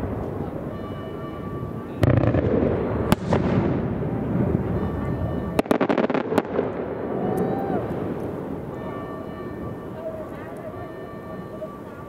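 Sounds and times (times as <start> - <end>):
rumble of explosions: 0.0 - 12.0
sharp firework bangs: 2.0 - 8.8.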